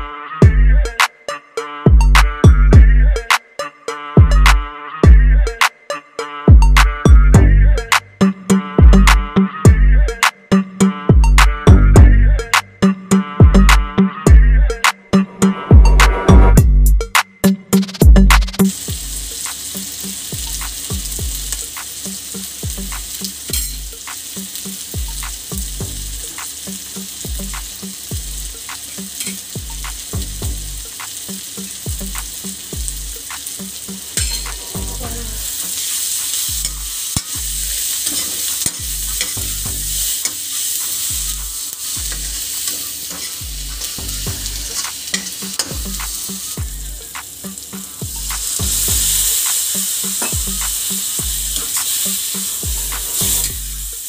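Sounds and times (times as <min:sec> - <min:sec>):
vegetables sizzling in oil: 0:17.8 - 0:54.0
water poured into hot pan: 0:18.6 - 0:34.8, 0:35.5 - 0:54.0
spoon stirring against metal pan: 0:28.7 - 0:29.6, 0:33.4 - 0:34.8, 0:35.4 - 0:53.6.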